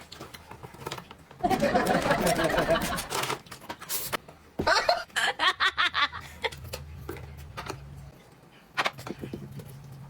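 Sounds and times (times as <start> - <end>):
person laughing: 1.4 - 3.1, 4.6 - 6.6.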